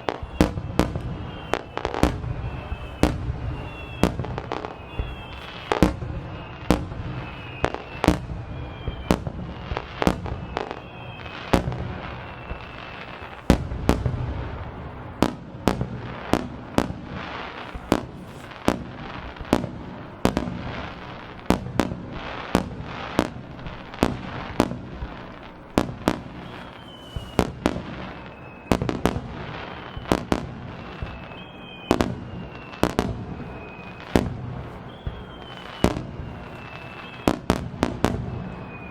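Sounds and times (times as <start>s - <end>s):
fireworks bangs: 0.0s - 38.9s
whistling firework shell: 0.0s - 38.9s.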